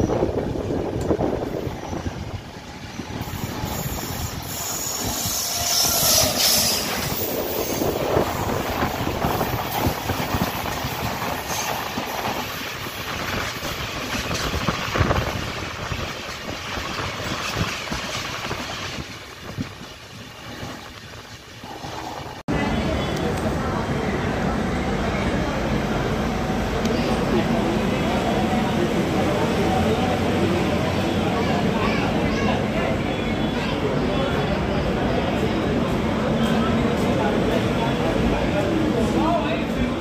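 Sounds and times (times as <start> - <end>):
rushing wind: 0.0 - 23.1
passing passenger train: 0.0 - 40.0.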